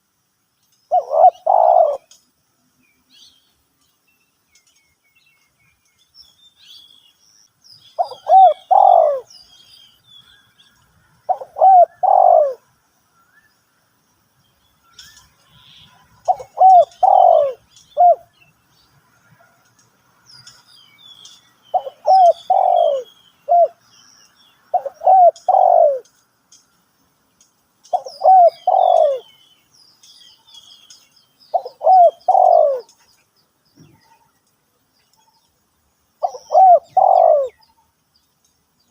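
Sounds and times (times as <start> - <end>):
small birds chirping: 0.0 - 38.9
dove cooing: 0.9 - 2.2, 8.0 - 9.3, 11.3 - 12.6, 16.2 - 18.3, 21.7 - 23.8, 24.7 - 26.1, 27.9 - 29.4, 31.5 - 32.9, 36.2 - 37.6.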